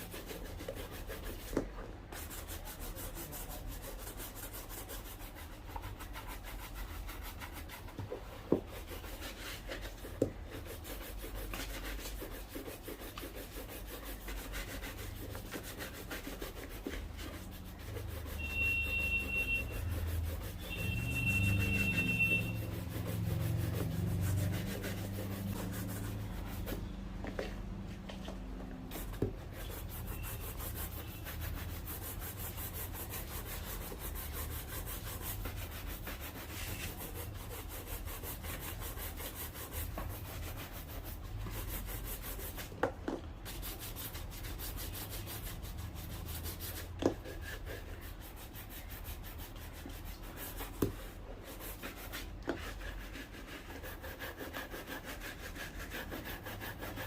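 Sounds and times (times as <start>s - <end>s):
scratchy rubbing on a shoe: 0.0s - 57.0s
high whistle-like tones: 18.4s - 19.7s, 20.7s - 22.6s.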